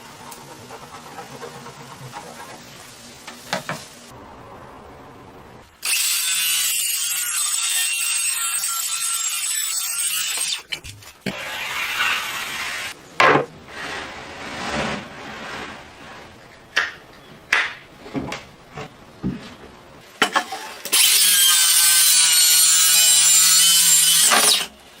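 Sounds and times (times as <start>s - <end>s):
sawing or rubbing strokes: 10.2s - 13.0s, 13.7s - 16.4s.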